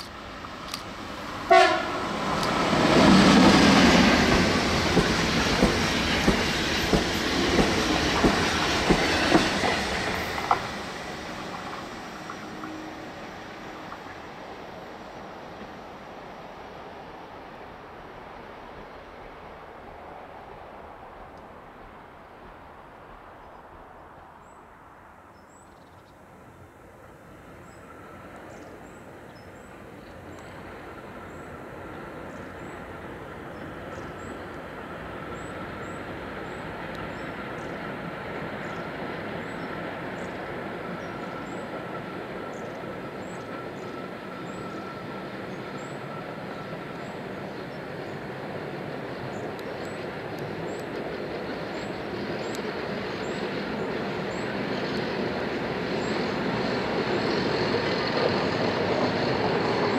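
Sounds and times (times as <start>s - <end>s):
electric train rumbling: 0.0s - 25.6s, 26.2s - 59.9s.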